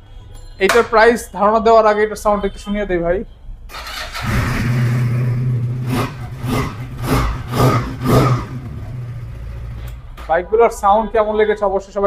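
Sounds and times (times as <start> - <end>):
motorcycle engine idling and revving: 3.8 - 10.3.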